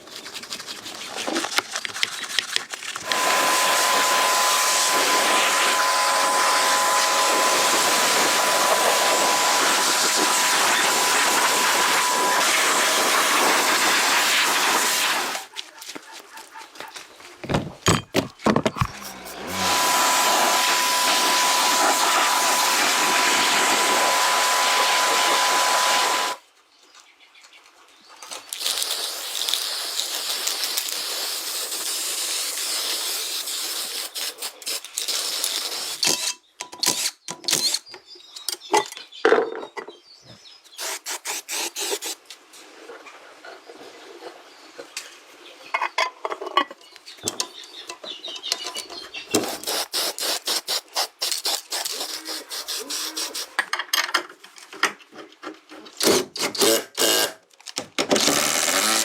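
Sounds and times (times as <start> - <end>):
workshop tool hissing: 3.0 - 15.5, 18.8 - 26.4.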